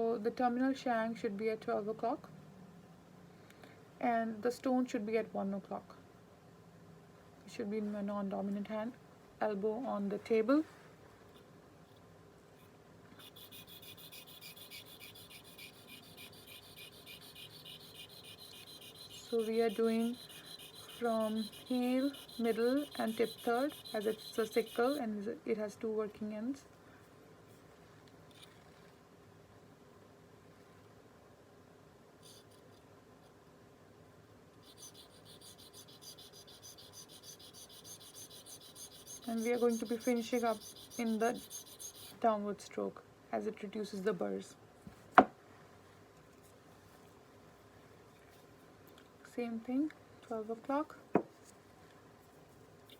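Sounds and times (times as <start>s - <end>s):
stone scraping on metal blade: 13.2s - 25.0s, 34.6s - 42.2s.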